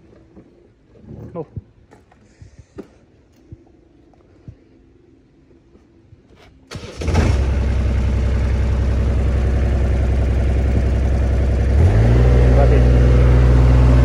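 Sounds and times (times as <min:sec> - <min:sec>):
diesel engine cranking: 0:06.7 - 0:14.0
diesel engine idling: 0:06.8 - 0:14.0.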